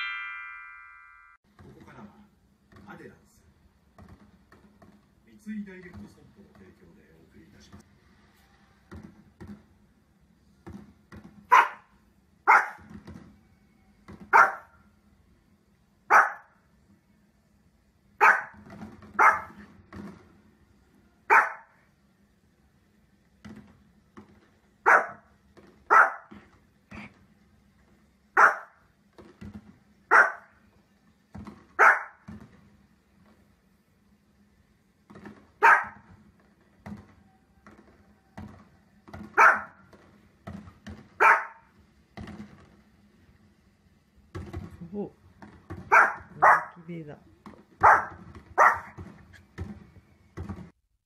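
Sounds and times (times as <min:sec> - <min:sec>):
small dog barking: 0:11.5 - 0:11.9, 0:12.5 - 0:12.9, 0:14.3 - 0:14.8, 0:16.1 - 0:16.6, 0:18.2 - 0:18.6, 0:19.2 - 0:19.6, 0:21.3 - 0:21.8, 0:24.8 - 0:25.3, 0:25.9 - 0:26.4, 0:28.4 - 0:28.8, 0:30.1 - 0:30.5, 0:31.8 - 0:32.2, 0:35.6 - 0:36.0, 0:39.4 - 0:39.8, 0:41.2 - 0:41.7, 0:45.9 - 0:46.8, 0:47.8 - 0:49.0.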